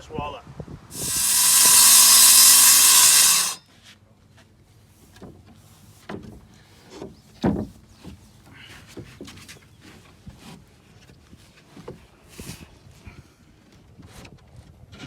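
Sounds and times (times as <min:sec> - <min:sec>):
power tool running: 0:00.9 - 0:03.6.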